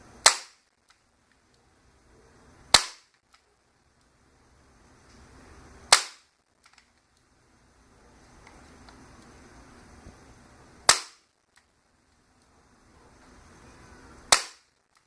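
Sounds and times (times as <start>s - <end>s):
nail gun firing: 0.2s - 0.6s, 2.7s - 3.2s, 5.9s - 6.3s, 10.9s - 11.2s, 14.3s - 14.7s.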